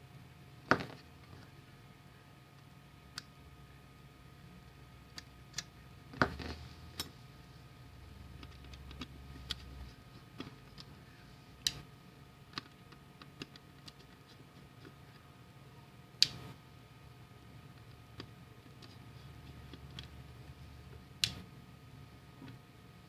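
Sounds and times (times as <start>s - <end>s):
faint electrical hum: 0.0s - 23.0s
small parts clicking and tapping: 8.4s - 11.0s, 12.5s - 15.0s.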